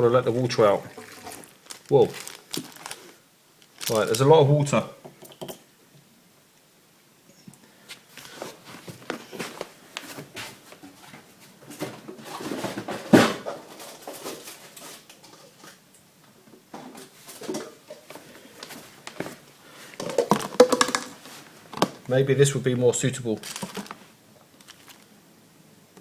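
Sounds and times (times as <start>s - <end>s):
pot and hose knocking and rattling: 0.0s - 3.0s, 16.8s - 22.1s, 23.4s - 24.0s
water spilling into plastic pot: 0.0s - 4.3s, 19.9s - 22.0s.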